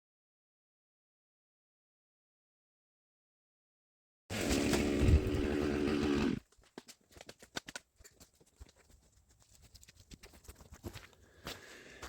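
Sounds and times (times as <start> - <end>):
chainsaw idling: 4.3 - 6.4.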